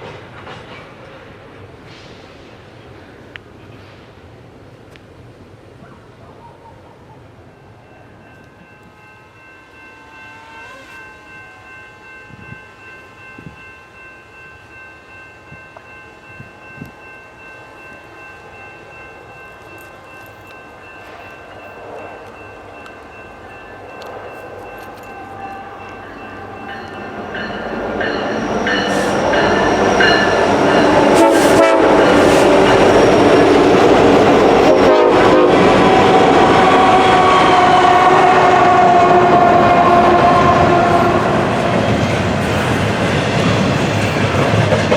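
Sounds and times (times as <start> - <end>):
train wheels clacking: 0.0 - 2.7, 19.5 - 44.9
diesel train rumbling: 16.1 - 44.9.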